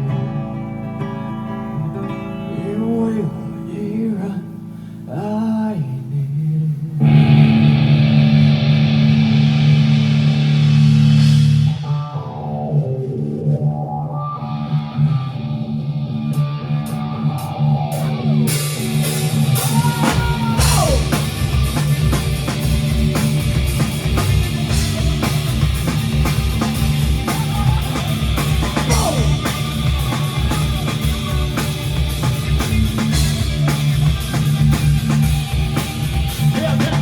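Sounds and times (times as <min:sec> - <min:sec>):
live rock band playing: 0:00.0 - 0:04.0, 0:07.0 - 0:13.2, 0:13.9 - 0:37.0
guitar with sliding notes: 0:00.0 - 0:05.1, 0:07.0 - 0:37.0.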